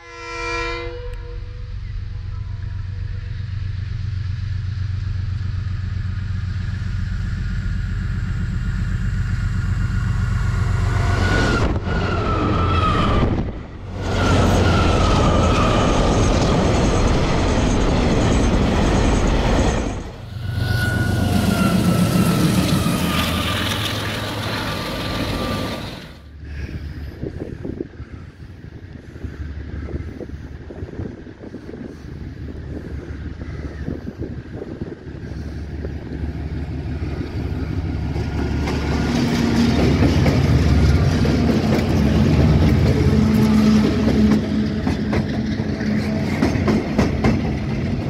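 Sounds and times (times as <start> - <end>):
locomotive rumbling: 0.0 - 48.0
rushing rail noise: 0.0 - 48.0
high whistling tone: 20.3 - 24.5.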